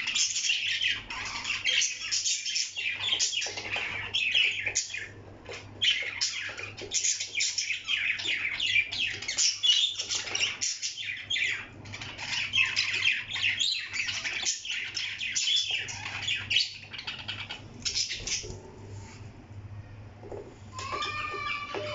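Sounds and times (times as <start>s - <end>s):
parrot squawking and chattering: 0.0s - 5.1s, 20.7s - 21.9s.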